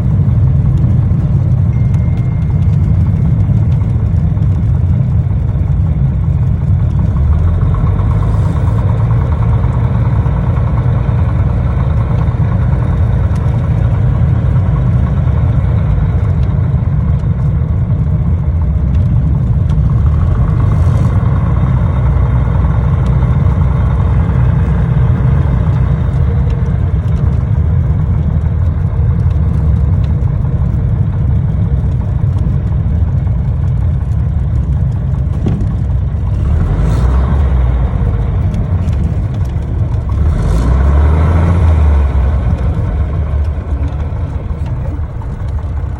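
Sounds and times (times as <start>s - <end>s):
small plane engine droning: 0.0s - 45.9s.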